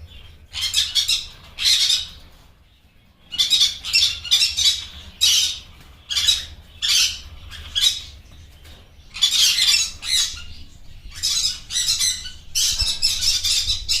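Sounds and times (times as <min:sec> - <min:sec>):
parrot squawking: 0:03.3 - 0:08.1, 0:09.2 - 0:14.0.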